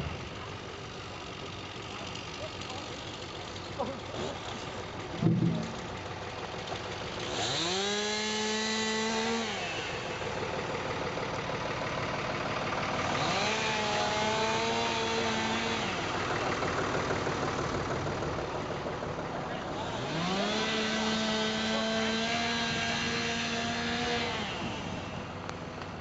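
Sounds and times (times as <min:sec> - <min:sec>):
low thump: 0:05.2 - 0:05.8
chainsaw revving: 0:07.0 - 0:10.7, 0:12.5 - 0:17.9, 0:19.7 - 0:25.4.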